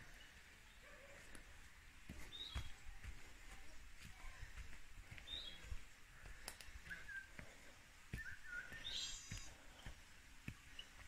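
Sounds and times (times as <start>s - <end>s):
footsteps on a path: 0.0s - 11.0s
birds chirping and whistling: 2.2s - 2.8s, 5.2s - 11.0s.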